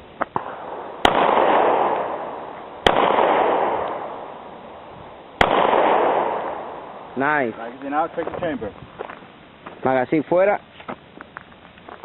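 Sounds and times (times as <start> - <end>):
pistol shots echoing: 0.4 - 4.5, 5.4 - 7.2.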